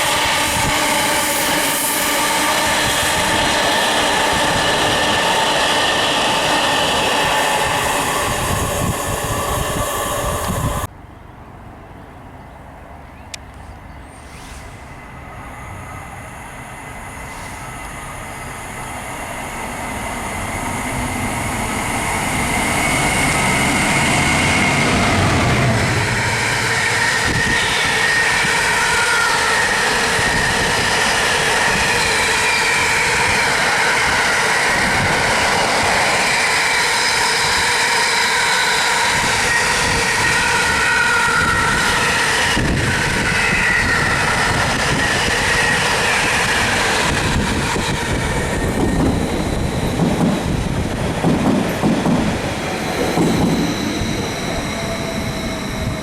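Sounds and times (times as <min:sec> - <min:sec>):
train rumbling past: 0:00.0 - 0:56.0
high wavering tones: 0:52.9 - 0:56.0.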